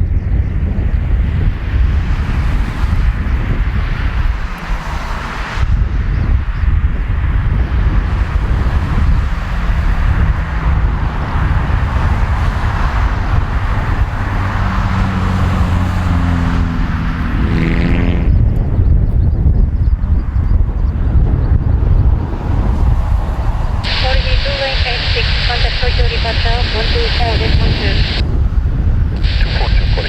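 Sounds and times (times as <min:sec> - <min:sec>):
wind buffeting microphone: 0:00.0 - 0:30.0
jet engines rumbling: 0:21.0 - 0:30.0
steady pitched hums: 0:23.8 - 0:28.2, 0:29.2 - 0:30.0.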